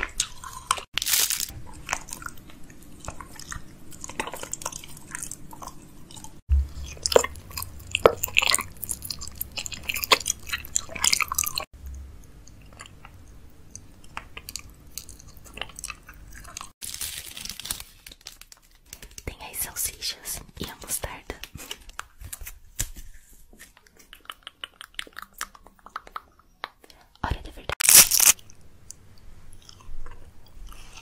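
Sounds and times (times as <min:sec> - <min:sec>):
crunchy food chewing: 0:00.0 - 0:16.8, 0:27.7 - 0:31.0.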